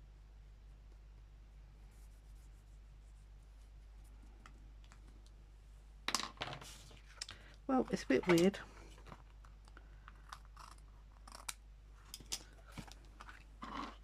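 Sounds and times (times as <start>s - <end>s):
faint paper scratching: 1.8s - 4.4s.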